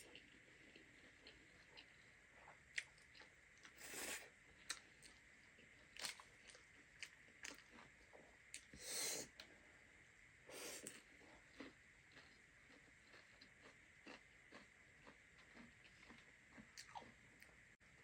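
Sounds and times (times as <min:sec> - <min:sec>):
wet mouth clicks and chewing: 0:10.8 - 0:17.2.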